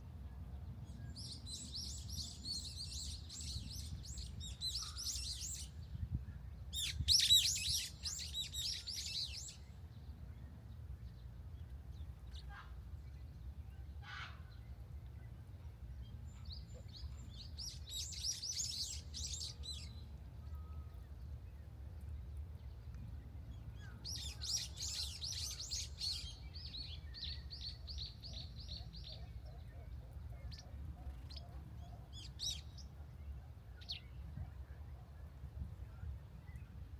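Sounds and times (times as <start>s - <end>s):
songbirds twittering: 0.2s - 36.9s.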